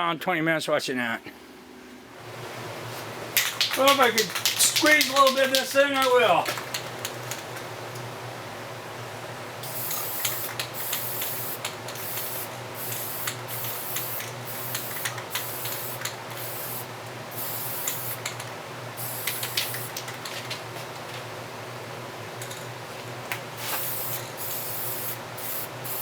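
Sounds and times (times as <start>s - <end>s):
spray paint hissing bursts: 3.4s - 7.4s, 9.6s - 18.4s, 19.0s - 20.4s, 23.6s - 26.0s.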